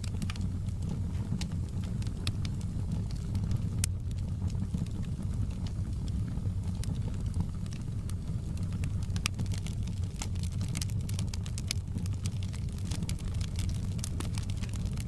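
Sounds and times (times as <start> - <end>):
fire pops and snaps: 0.0 - 15.0
low roar of flames: 0.0 - 15.0.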